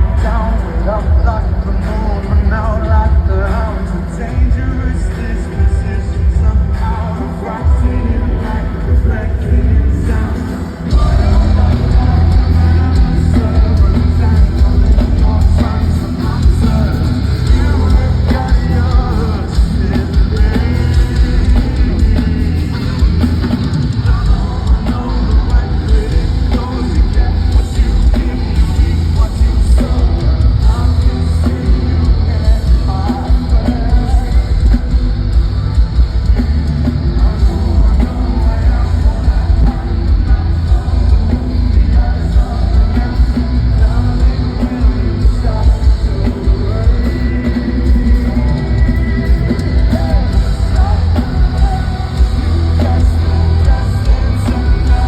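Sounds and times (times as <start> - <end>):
heavy drums: 0.0 - 55.0
live rock band playing: 0.0 - 55.0
person singing: 0.0 - 55.0.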